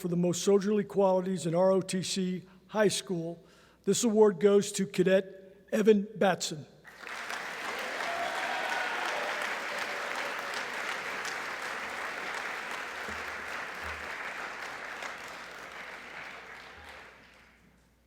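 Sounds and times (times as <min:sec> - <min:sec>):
audience applauding: 0:06.9 - 0:17.8.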